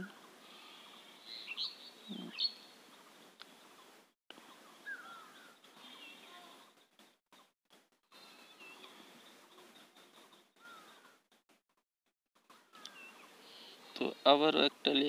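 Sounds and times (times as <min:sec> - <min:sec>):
birds whistling calls: 0:00.7 - 0:02.7, 0:04.7 - 0:06.3, 0:10.6 - 0:11.1, 0:12.7 - 0:13.7.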